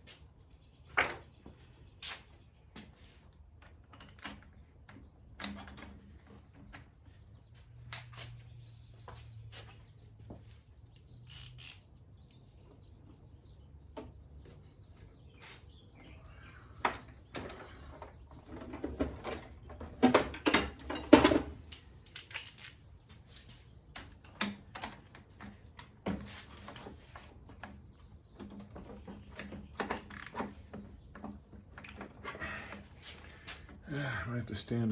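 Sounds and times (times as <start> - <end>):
short squeaks: 11.2 - 11.9
metal tools clinking and clanking: 18.5 - 21.4.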